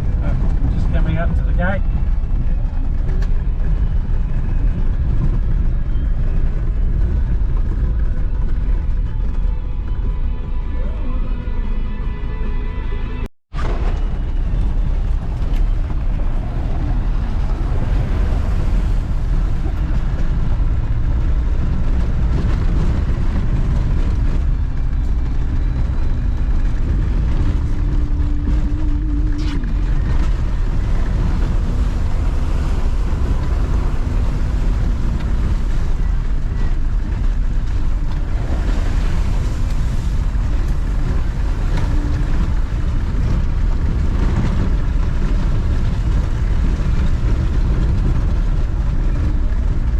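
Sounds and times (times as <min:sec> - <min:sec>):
car engine and road noise: 0:00.0 - 0:49.9
wind buffeting microphone: 0:13.5 - 0:49.9.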